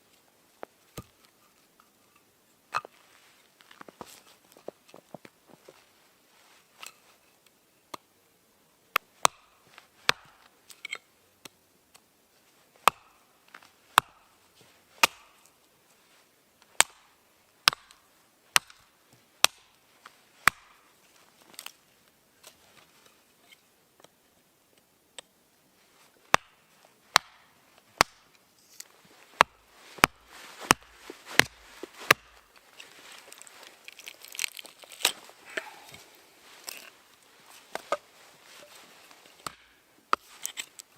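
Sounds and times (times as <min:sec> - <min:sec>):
blade chopping into wood: 0:15.0 - 0:15.4, 0:20.4 - 0:20.8, 0:26.3 - 0:27.4, 0:29.4 - 0:32.4, 0:39.4 - 0:40.6.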